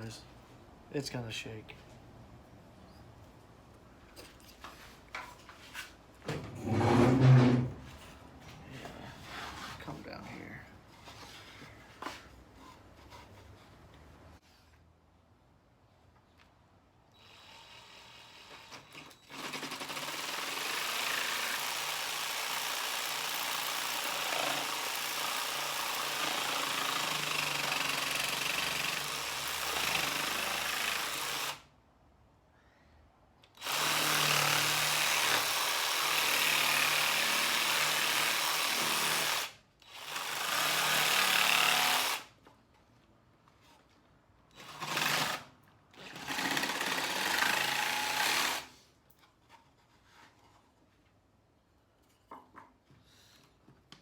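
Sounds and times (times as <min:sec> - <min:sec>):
jigsaw cutting wood: 0:17.3 - 0:31.6, 0:33.6 - 0:42.3, 0:44.6 - 0:48.7.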